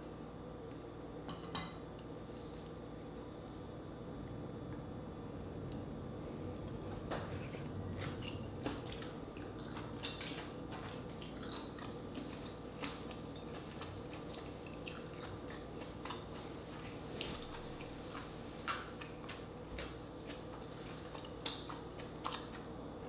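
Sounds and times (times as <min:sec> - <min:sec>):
steady low hum: 0:00.0 - 0:23.0
soft chewing mouth clicks: 0:06.7 - 0:22.7.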